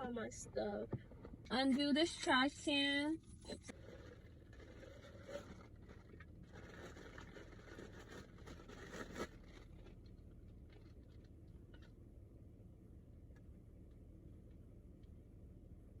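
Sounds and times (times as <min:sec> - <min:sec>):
rustling of unwrapping: 0:03.7 - 0:11.9.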